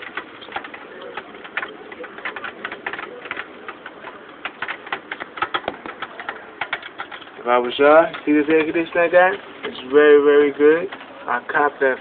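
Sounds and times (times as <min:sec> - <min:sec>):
drops tapping a hard surface: 0:04.4 - 0:07.3.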